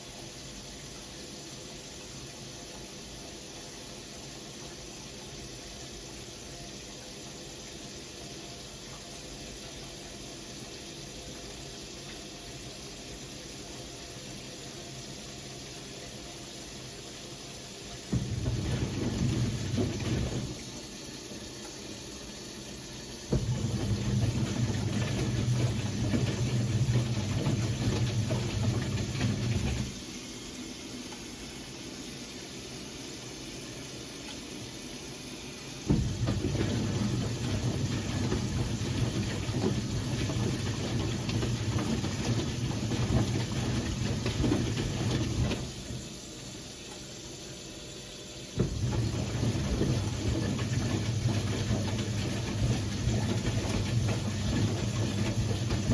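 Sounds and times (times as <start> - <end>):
washing machine motor humming: 0.0 - 55.9
laundry churning: 17.6 - 30.2, 35.8 - 46.9, 48.6 - 55.9.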